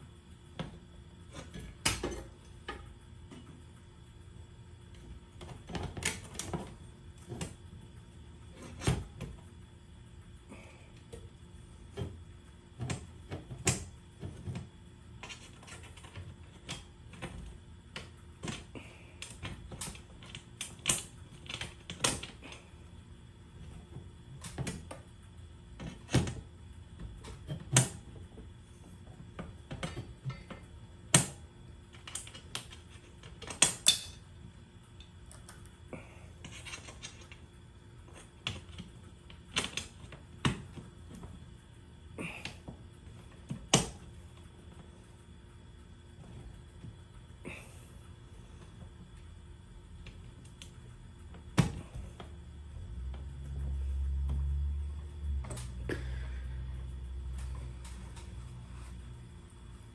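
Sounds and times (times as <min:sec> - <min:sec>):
tools and metal hardware clicking: 0:32.0 - 0:34.2.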